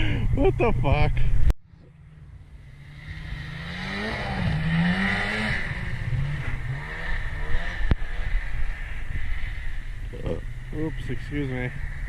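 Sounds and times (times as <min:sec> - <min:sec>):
small engine revving: 0:02.6 - 0:12.0.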